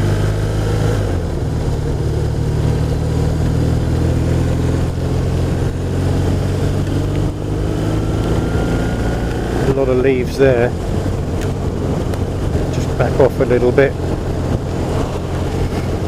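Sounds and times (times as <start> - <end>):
motorcycle engine running: 0.0 - 16.0
faint rising tone: 7.4 - 9.8, 14.2 - 16.0.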